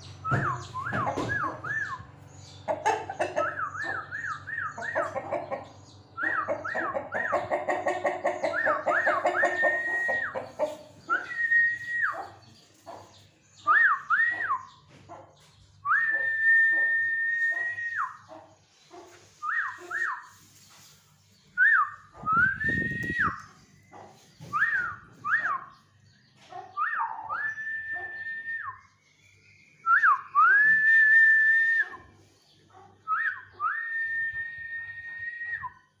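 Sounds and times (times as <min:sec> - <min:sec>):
chicken clucking: 0:00.1 - 0:28.5, 0:31.7 - 0:33.7
high whistles: 0:11.0 - 0:12.2, 0:15.9 - 0:18.2, 0:19.4 - 0:20.4, 0:21.6 - 0:23.5, 0:24.4 - 0:25.7, 0:29.8 - 0:32.0, 0:33.1 - 0:35.8.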